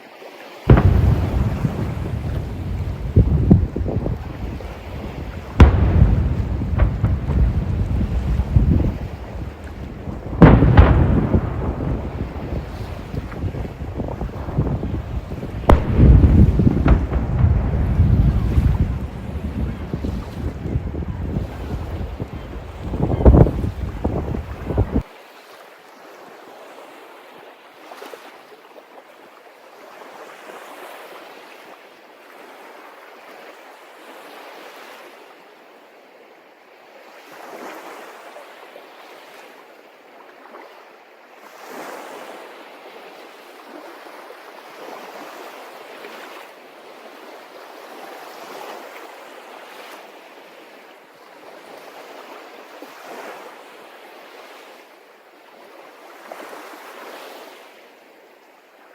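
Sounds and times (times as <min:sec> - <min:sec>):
sea water washing and lapping: 0:00.0 - 0:35.1.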